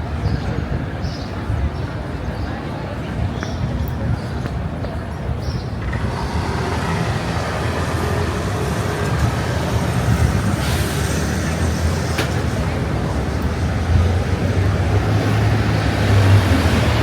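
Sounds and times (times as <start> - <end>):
low rumble of passing vehicles: 4.7 - 17.0
vehicle hissing by: 5.8 - 17.0.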